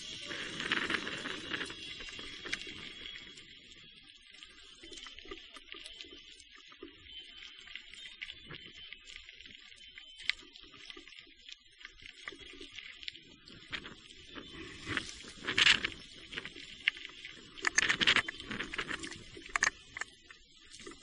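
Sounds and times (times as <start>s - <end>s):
bike tyres and frame rattling: 0.0s - 2.9s.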